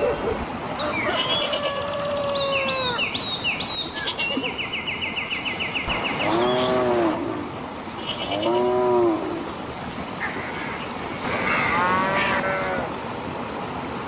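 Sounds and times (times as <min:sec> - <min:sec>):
animal calling: 0:05.8 - 0:13.0.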